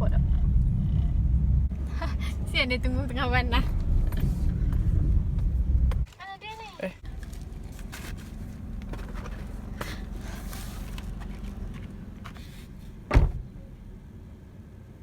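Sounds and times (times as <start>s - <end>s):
car engine rumble inside cabin: 0.0s - 6.1s, 7.0s - 15.0s
loud thump: 13.1s - 13.5s.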